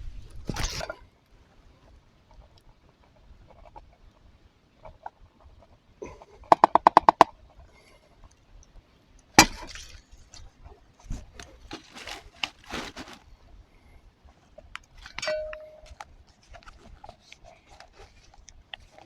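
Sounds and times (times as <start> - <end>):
taps on metal pot: 6.5 - 7.3
utensils clinking against pot: 15.1 - 16.0.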